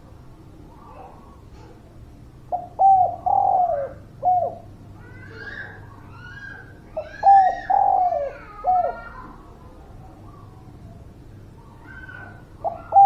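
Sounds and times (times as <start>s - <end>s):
dove cooing: 2.5s - 4.8s, 5.4s - 9.3s, 11.9s - 13.0s.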